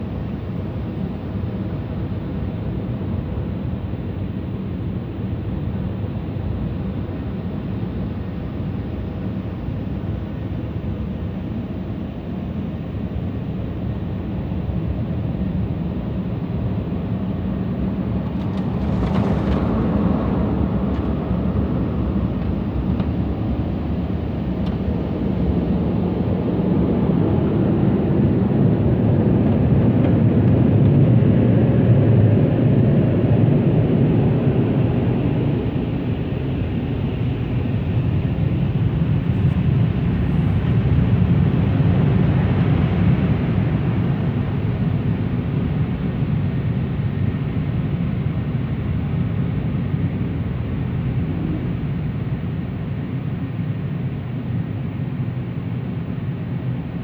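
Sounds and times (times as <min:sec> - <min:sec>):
car wash machinery rumbling: 0:16.5 - 0:27.8.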